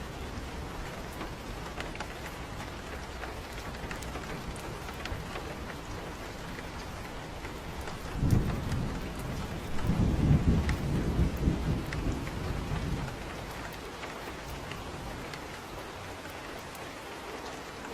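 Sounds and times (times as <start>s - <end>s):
rain falling on a porch: 0.0s - 17.9s
raindrop ticks: 0.0s - 17.9s
thunder rumbling: 2.7s - 15.6s.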